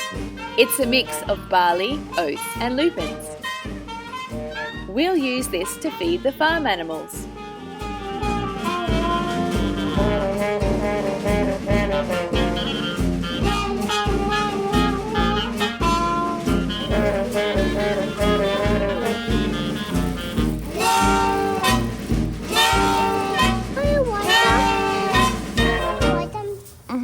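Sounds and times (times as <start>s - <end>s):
upbeat jazzy swing music: 0.0s - 27.0s.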